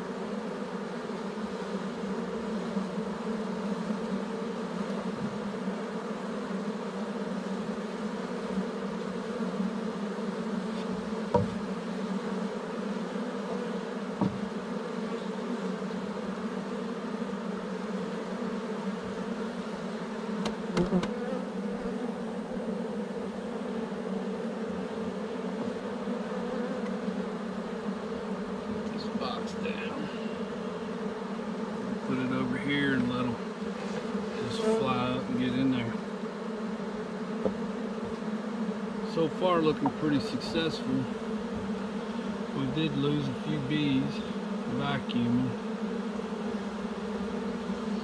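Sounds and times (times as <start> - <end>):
bee swarm buzzing: 0.0 - 48.0
light knocks: 11.3 - 11.6, 14.2 - 14.5.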